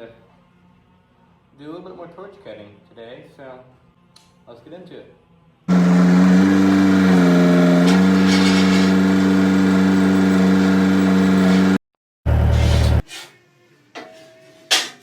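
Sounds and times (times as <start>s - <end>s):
loud motor humming: 5.7s - 13.0s.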